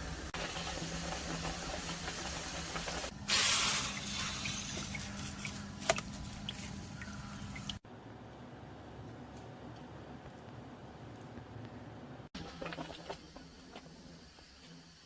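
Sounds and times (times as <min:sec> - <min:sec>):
hissing burst of spray: 0:02.9 - 0:04.8
faint drips and ticks: 0:04.8 - 0:07.8.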